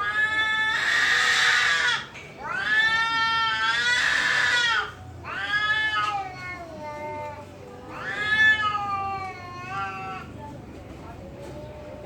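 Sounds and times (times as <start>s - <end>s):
cats yowling: 0.0s - 7.2s, 7.9s - 10.3s.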